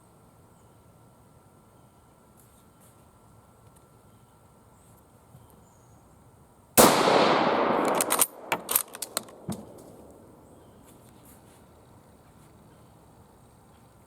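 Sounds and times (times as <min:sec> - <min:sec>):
rifle bolt clicks: 0:06.8 - 0:10.2
rifle shot echoing: 0:06.8 - 0:10.5.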